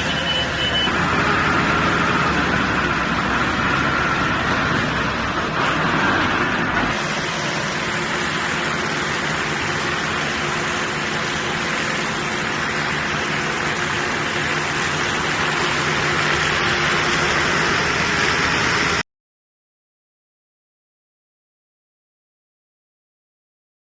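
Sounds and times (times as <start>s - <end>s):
tractor engine hum: 0.0s - 19.0s.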